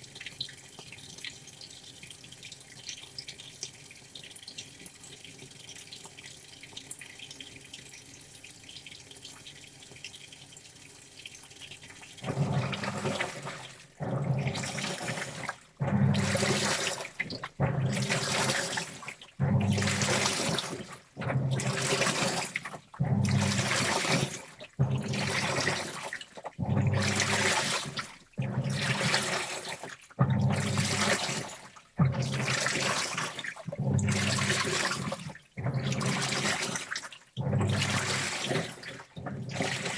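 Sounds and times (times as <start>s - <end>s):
water trickling into drum: 0.0s - 39.9s
washing machine sloshing: 12.1s - 39.9s.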